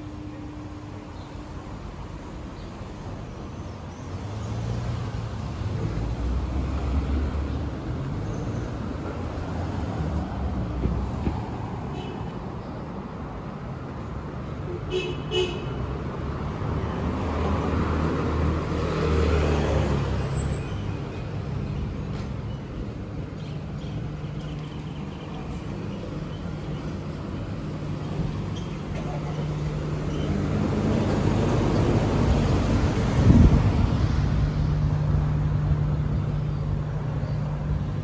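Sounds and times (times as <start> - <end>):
street traffic: 0.0 - 38.0.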